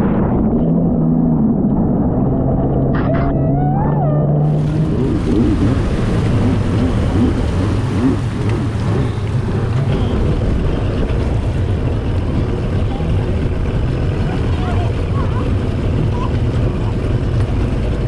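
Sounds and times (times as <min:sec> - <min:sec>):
water and air noise: 0:00.0 - 0:18.0
jet ski engine: 0:00.6 - 0:18.0.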